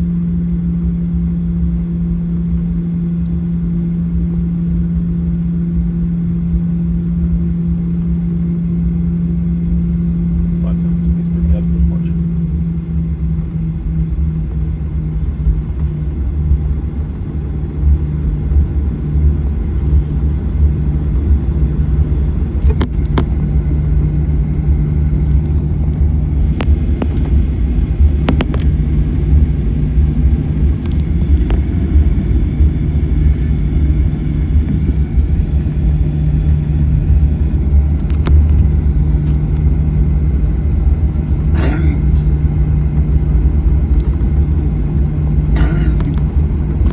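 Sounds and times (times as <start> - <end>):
jet cabin rumble and hum: 0.0 - 46.9.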